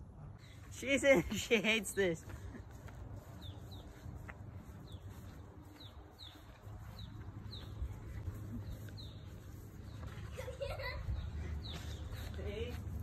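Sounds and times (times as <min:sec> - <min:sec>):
small bird chirping: 0:03.2 - 0:12.6.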